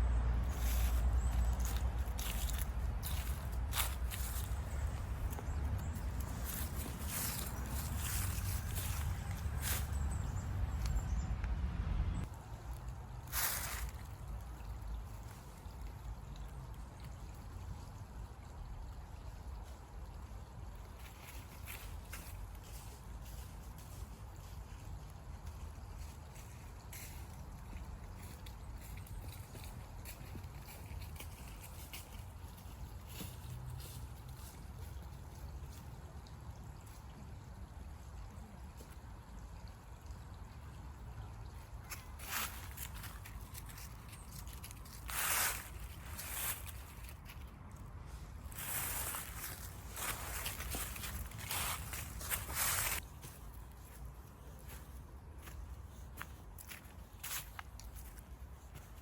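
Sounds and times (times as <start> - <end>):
stream trickling: 0.0 - 59.0
low rumble: 4.3 - 12.3.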